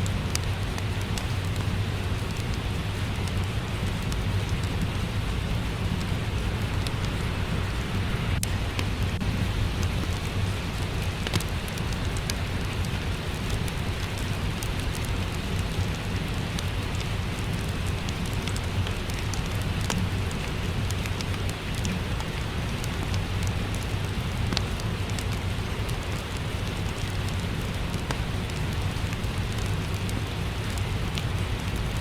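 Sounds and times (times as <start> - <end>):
low even rumble: 0.0 - 21.0
steady rain: 0.0 - 32.0
wood fire crackling: 0.0 - 32.0.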